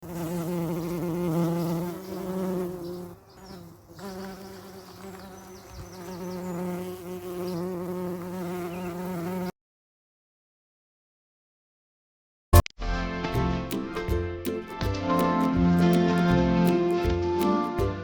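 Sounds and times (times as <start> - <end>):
bees buzzing: 0.0 - 9.5.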